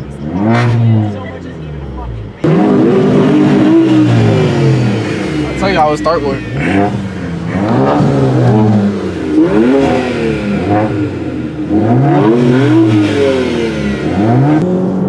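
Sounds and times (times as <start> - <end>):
straight-piped car engine revving: 0.0 - 15.0.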